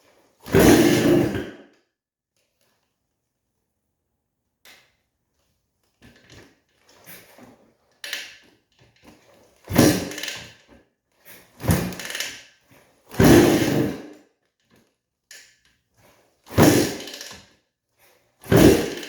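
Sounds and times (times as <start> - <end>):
kick-start thunk and engine turning over: 16.5 - 17.2, 18.5 - 19.0.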